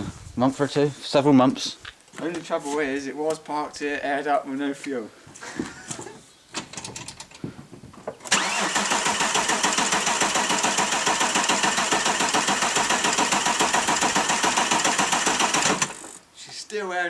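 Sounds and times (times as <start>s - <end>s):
starter motor cranking engine: 8.2s - 16.2s.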